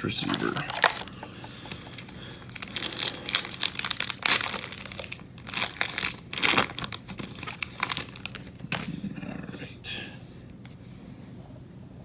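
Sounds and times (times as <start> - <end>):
foil wrapper crinkling and tearing: 0.2 - 8.9.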